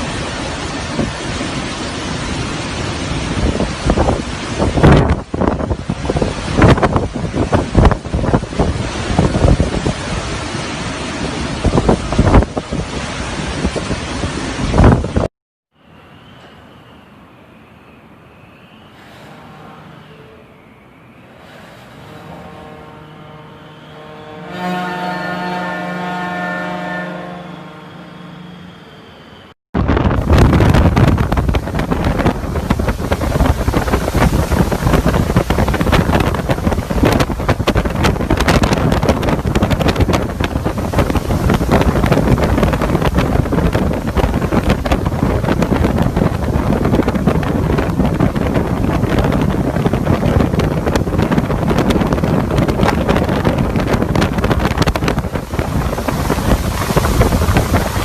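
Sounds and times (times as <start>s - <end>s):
strong wind buffeting microphone: 0.0s - 15.3s, 29.8s - 58.0s.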